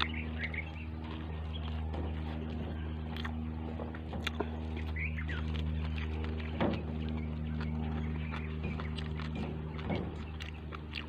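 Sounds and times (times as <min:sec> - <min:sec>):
chewing and biting food: 0:00.0 - 0:11.0
low motor hum: 0:00.0 - 0:11.0.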